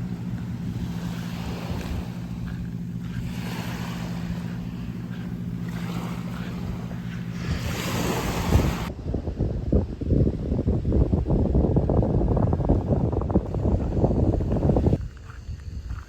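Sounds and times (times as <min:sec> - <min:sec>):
sea waves washing onto shore: 0:00.0 - 0:08.9
low motor hum: 0:00.0 - 0:16.0.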